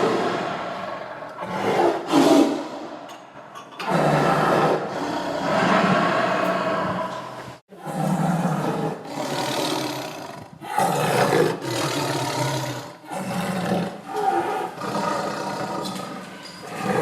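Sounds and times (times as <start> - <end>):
tiger roaring and growling: 0.0 - 17.0.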